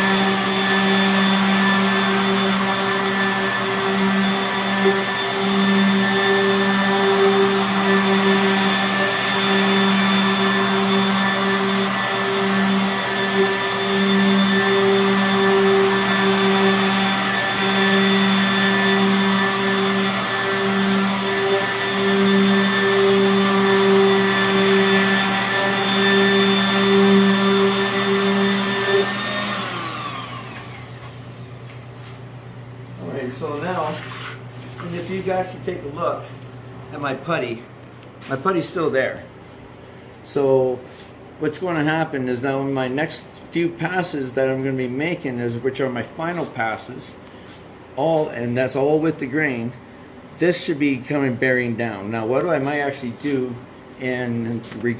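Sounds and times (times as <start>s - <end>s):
orbital sander whining: 0.0s - 31.9s.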